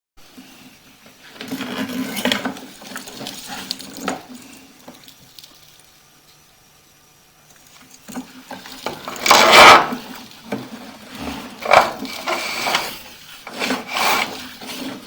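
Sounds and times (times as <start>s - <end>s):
camera cable scraping in drain pipe: 1.2s - 5.0s, 7.8s - 15.0s.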